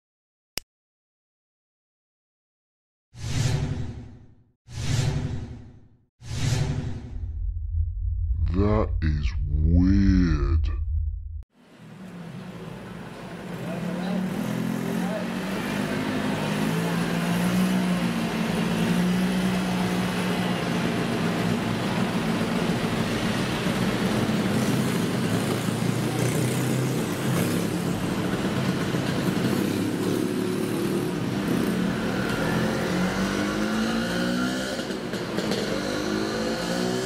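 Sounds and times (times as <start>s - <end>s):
motorbike and car engines passing: 11.6s - 37.0s.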